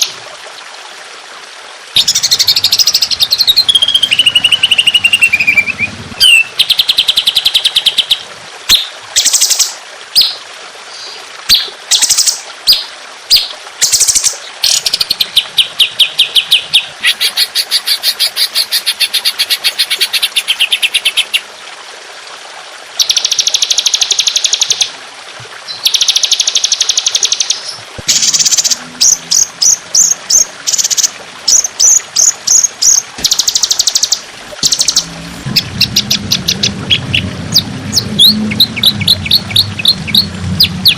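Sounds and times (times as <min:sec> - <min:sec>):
songbird calls: 0:02.0 - 0:21.5, 0:25.7 - 0:40.9.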